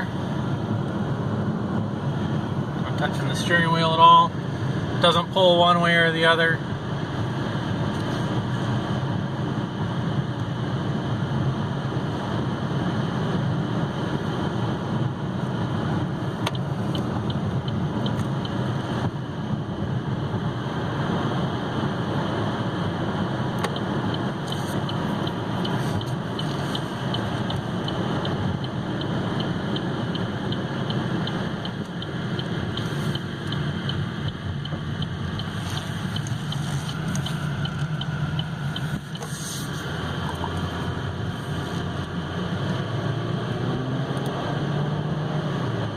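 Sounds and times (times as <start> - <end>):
car cabin road and engine noise: 0.0 - 45.9.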